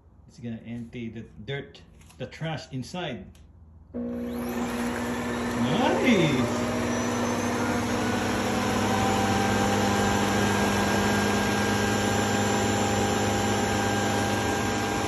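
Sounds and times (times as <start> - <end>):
vacuum suction motor whirring: 4.0 - 15.0.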